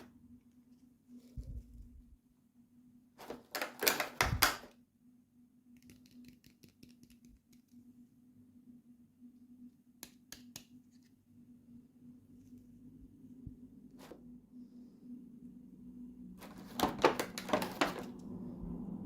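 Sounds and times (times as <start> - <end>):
plastic packaging rustling: 3.2 - 4.7, 16.4 - 18.2
faint steady hum: 4.0 - 19.0.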